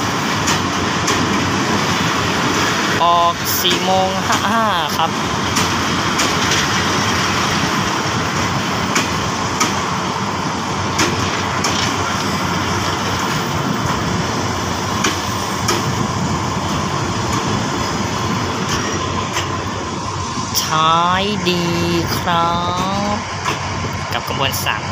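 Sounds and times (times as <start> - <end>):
wheels clacking over rail joints: 0.0 - 20.5
train wheels rumbling on rails: 0.0 - 24.9.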